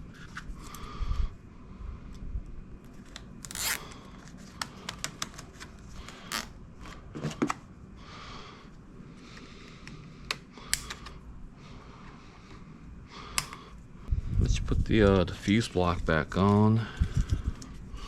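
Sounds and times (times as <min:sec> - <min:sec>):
hands handling wiring and plastic: 0:02.8 - 0:07.6.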